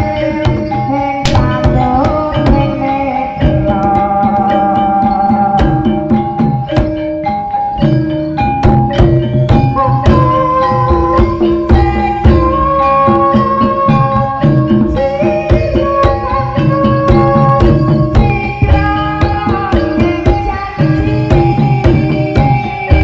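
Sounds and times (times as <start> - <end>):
hand drums beating: 0.0 - 23.0
held melody line: 0.0 - 23.0
tuned percussion notes: 0.0 - 23.0.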